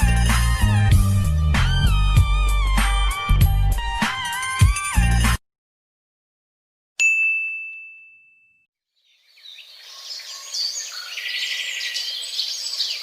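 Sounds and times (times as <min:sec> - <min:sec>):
high bell-like ding: 0:07.0 - 0:08.7
small birds chirping: 0:08.9 - 0:13.0.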